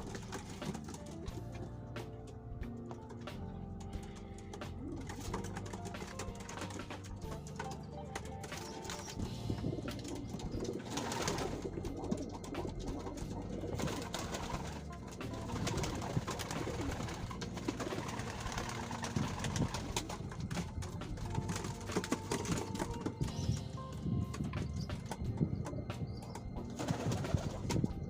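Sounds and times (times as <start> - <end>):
pigeons cooing: 0.0 - 28.0.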